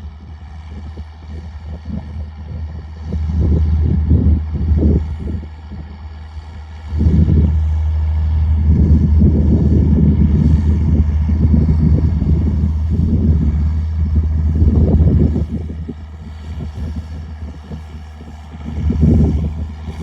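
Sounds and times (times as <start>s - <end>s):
diesel engine deep exhaust: 0.0s - 20.0s.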